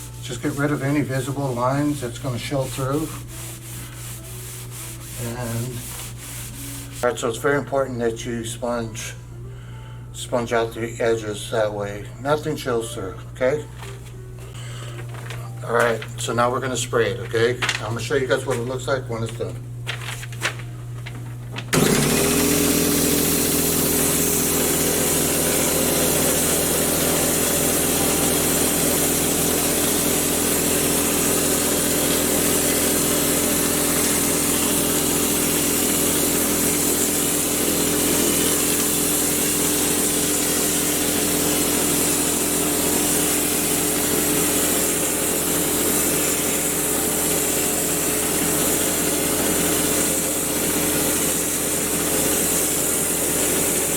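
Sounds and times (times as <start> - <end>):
air and spray hissing: 2.7 - 7.0, 22.6 - 48.8
motor humming: 19.8 - 53.7.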